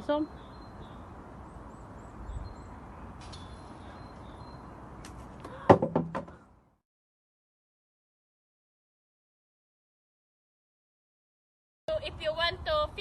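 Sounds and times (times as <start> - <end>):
faint bird chirps: 0.0 - 4.8.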